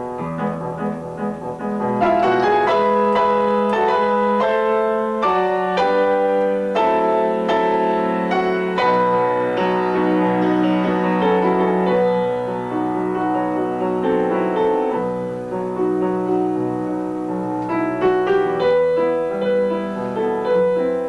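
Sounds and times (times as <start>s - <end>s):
classical keyboard piece: 0.0s - 21.0s.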